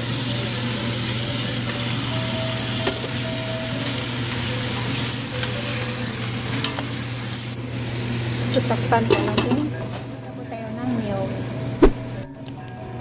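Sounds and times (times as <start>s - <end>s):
chicken sizzling in a pot: 0.0s - 10.0s.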